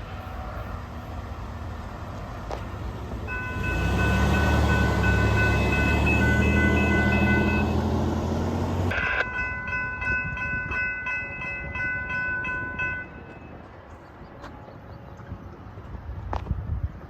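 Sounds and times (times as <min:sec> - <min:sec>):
heavy engine rumble: 0:00.0 - 0:11.0
locomotive horn: 0:03.3 - 0:08.1.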